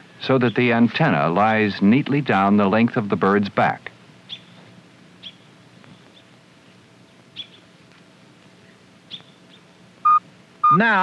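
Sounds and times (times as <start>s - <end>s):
faint low hum: 0.0s - 11.0s
high bird chirps: 7.4s - 7.6s.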